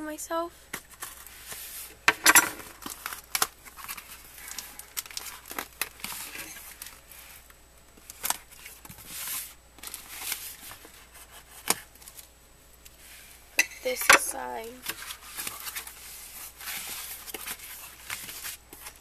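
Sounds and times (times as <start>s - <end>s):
packing tape tearing: 2.6s - 7.0s
cardboard crinkling: 2.6s - 12.3s, 14.4s - 19.0s.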